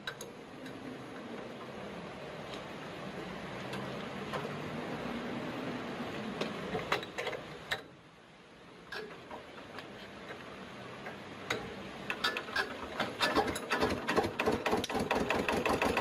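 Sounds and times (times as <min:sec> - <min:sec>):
sharp clicks and knocks: 0:00.0 - 0:00.8, 0:06.4 - 0:07.9, 0:08.9 - 0:16.0.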